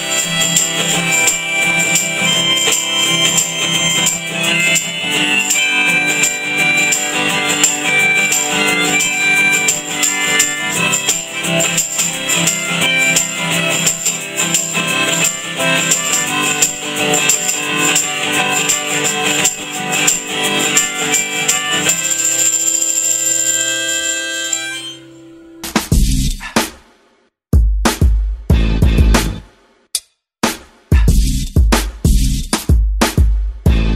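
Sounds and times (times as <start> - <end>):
shaken percussion beat: 0.0 - 24.6, 25.6 - 27.0, 27.6 - 29.7, 30.4 - 33.9
folk band playing: 0.4 - 22.1.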